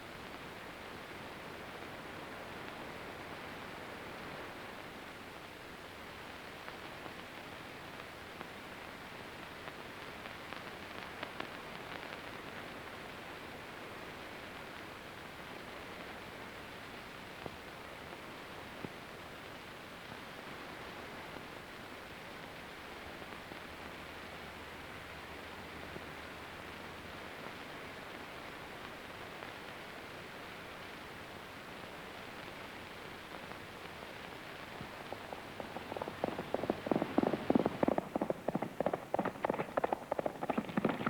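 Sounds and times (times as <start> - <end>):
film soundtrack surface hiss: 0.0 - 41.0
clicks and crackles: 34.6 - 41.0.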